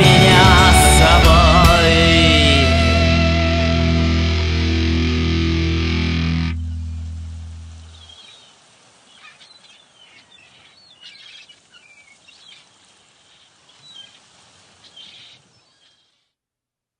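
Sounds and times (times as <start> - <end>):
faint outdoor hiss: 0.0 - 16.4
birds chirping: 5.0 - 16.3.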